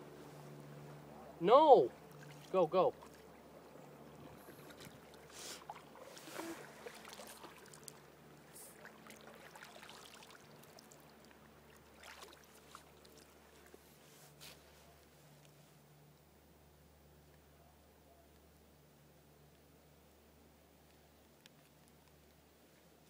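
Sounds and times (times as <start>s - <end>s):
canoe paddles splashing in water: 0.4s - 14.4s.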